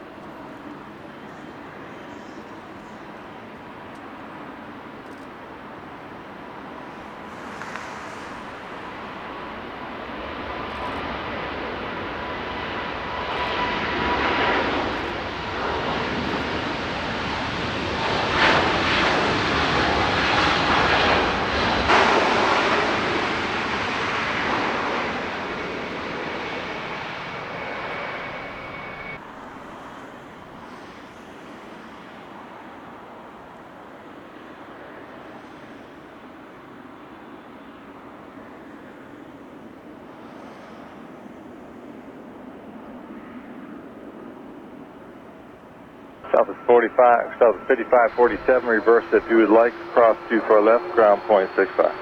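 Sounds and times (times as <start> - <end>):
jet engines passing: 0.0 - 52.0.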